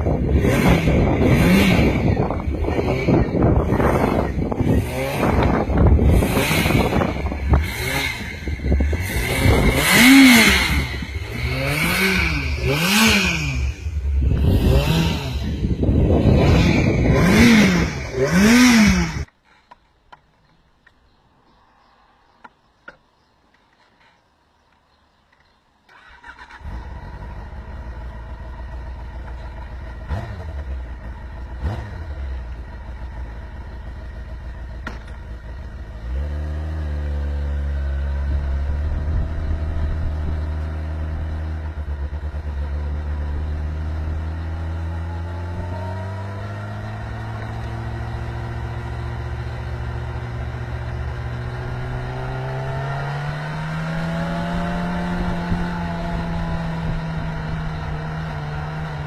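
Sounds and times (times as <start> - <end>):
vehicle engine running: 26.6 - 59.0.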